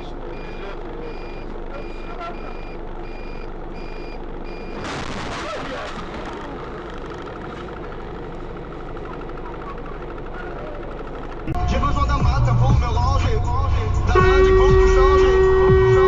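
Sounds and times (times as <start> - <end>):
road noise: 0.0 - 16.0
reversing alarm beeping: 0.3 - 4.8.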